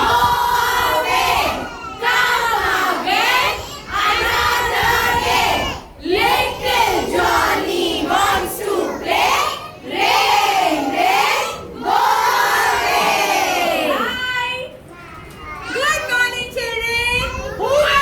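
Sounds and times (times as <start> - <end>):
children chanting a song: 0.0 - 14.2.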